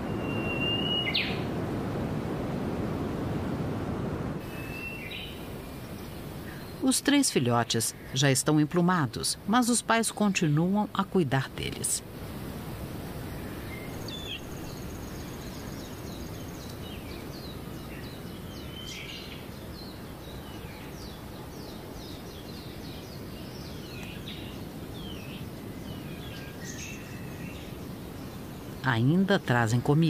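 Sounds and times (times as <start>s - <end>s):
birds chirping high calls: 0.0s - 1.5s, 4.4s - 8.3s, 13.2s - 30.0s
steady background hiss: 0.0s - 30.0s.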